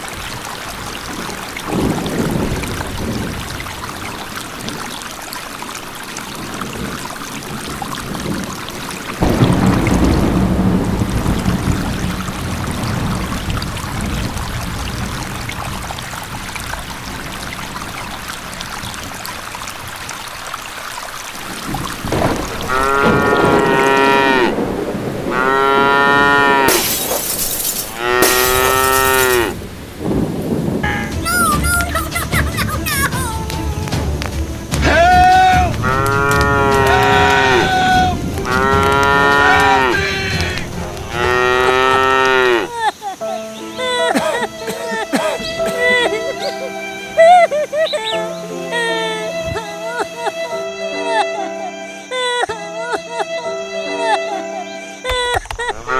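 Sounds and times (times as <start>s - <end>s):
rushing splashing water: 0.0s - 53.8s
cattle mooing: 22.7s - 24.6s, 25.3s - 26.8s, 28.0s - 29.6s, 35.8s - 42.7s.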